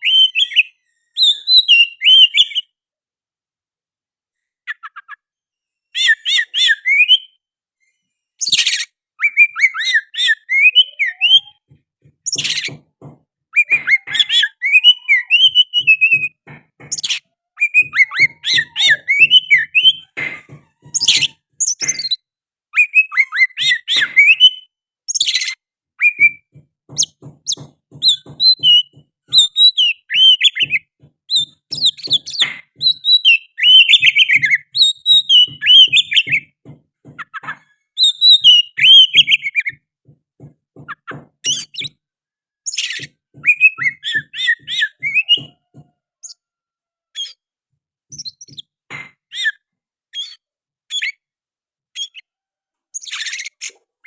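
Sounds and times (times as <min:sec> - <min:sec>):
bird singing whistles and chirps: 0:00.0 - 0:02.7, 0:05.9 - 0:07.4, 0:08.4 - 0:11.6, 0:13.6 - 0:20.1, 0:22.8 - 0:36.5, 0:38.0 - 0:39.8, 0:42.7 - 0:45.6.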